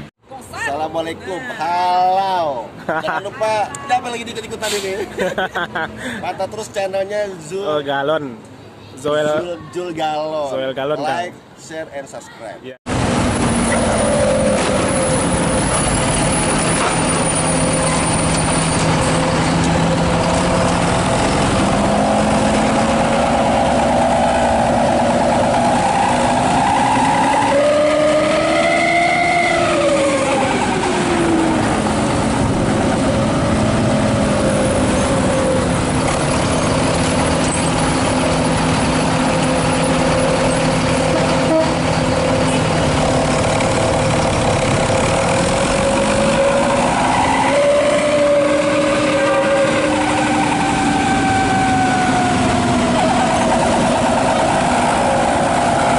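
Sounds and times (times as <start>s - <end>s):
bus engine howling exhaust: 12.9s - 55.9s.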